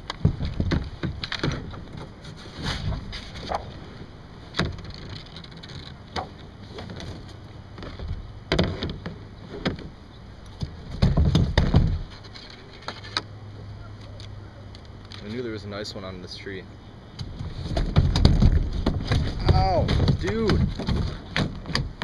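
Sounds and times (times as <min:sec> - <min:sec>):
low rumbling bumps: 0:10.6 - 0:12.2, 0:17.2 - 0:22.0.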